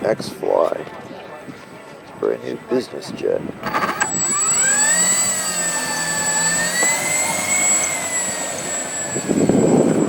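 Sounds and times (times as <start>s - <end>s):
electric ducted fans whining: 3.6s - 10.0s.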